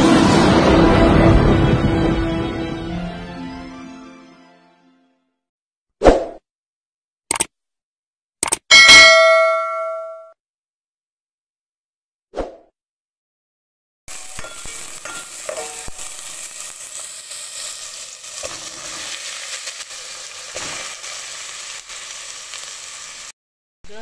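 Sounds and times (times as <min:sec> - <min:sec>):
onions sizzling in hot oil: 0:14.1 - 0:23.4.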